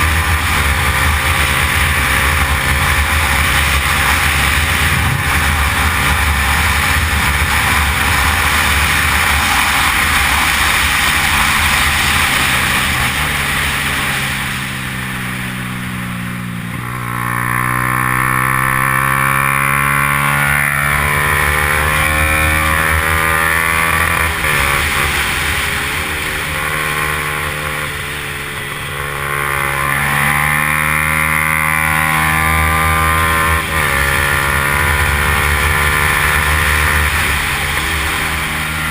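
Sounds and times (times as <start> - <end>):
wind rush: 0.0 - 15.4
motorcycle engine running hard: 0.0 - 38.9.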